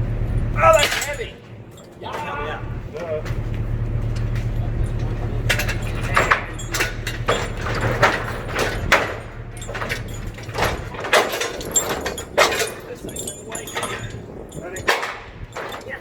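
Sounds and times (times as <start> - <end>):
metal clanks and knocks: 0.0 - 16.0
vehicle engine idling: 0.0 - 16.0.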